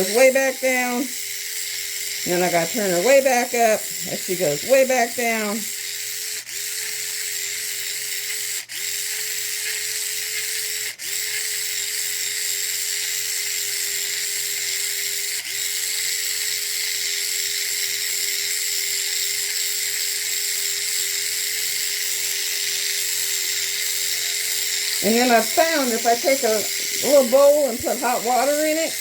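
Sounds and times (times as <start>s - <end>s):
electric mixer whirring: 0.0s - 29.0s.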